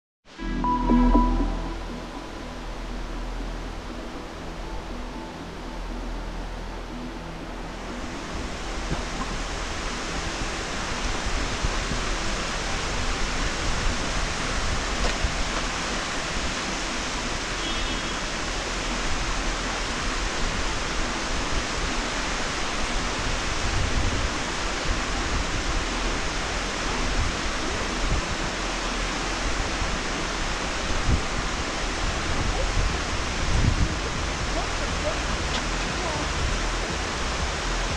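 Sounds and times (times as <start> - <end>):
waterfall rushing: 0.4 - 37.9
wind thumps on microphone: 31.0 - 37.7.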